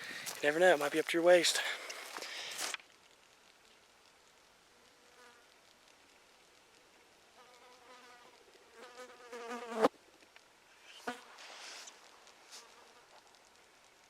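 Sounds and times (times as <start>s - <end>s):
flying insect buzzing: 7.4s - 9.9s.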